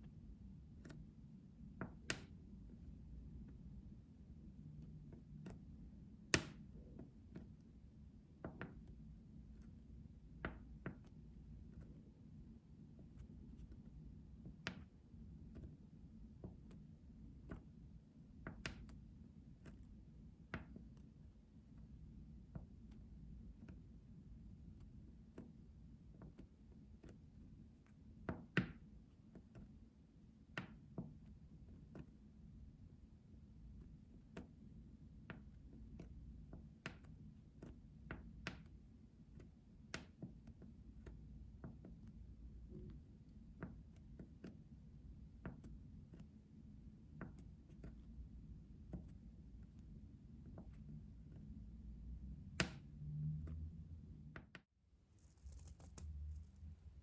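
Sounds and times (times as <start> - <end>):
faint low hum: 0.0 - 54.5, 55.1 - 57.0
soft taps and clicks: 8.4 - 12.0, 13.0 - 17.7, 18.4 - 19.0, 35.2 - 44.7, 45.4 - 46.3, 47.1 - 51.5.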